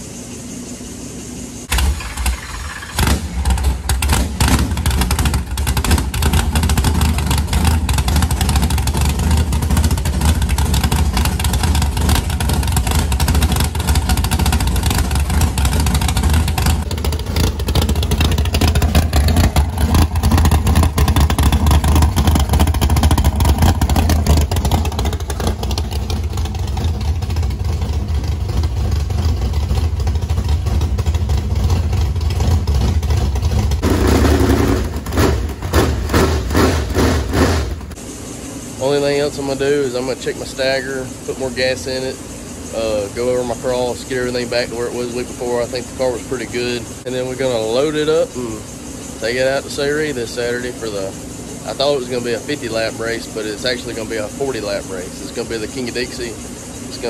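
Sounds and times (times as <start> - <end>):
race engine running loudly: 2.7 - 42.1.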